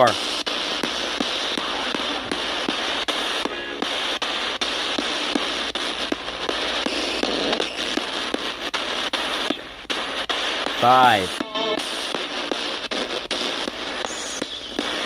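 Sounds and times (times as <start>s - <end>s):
radio static hiss: 0.0s - 15.0s
radio station tone: 10.8s - 12.0s.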